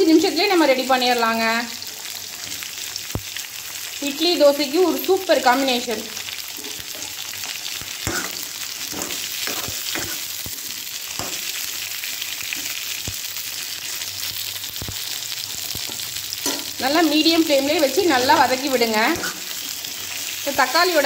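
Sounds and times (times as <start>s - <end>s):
vegetables sizzling in oil: 0.0s - 21.0s
spoon scraping and tapping pan: 8.0s - 11.5s, 15.8s - 16.8s.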